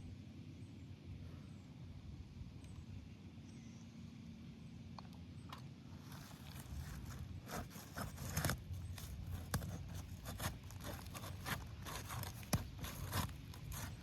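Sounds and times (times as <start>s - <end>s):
roofing shingles scraping: 6.0s - 14.0s.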